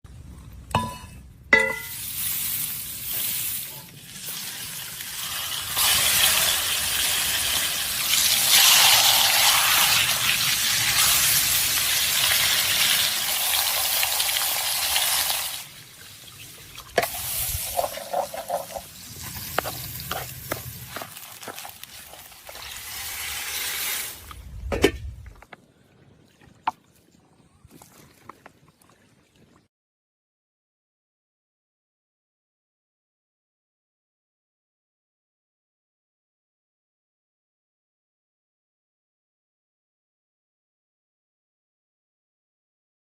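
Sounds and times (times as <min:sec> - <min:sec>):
clink: 0:00.8 - 0:02.0
fish sizzling in hot oil: 0:01.9 - 0:24.2.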